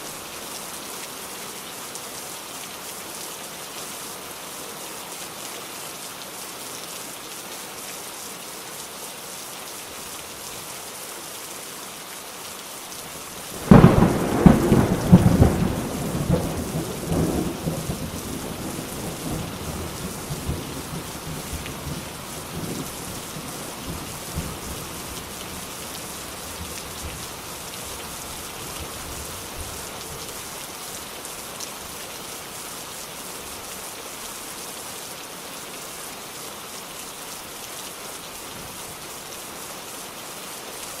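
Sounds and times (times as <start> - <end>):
steady rain: 0.0 - 41.0
thunderclap: 13.6 - 18.0.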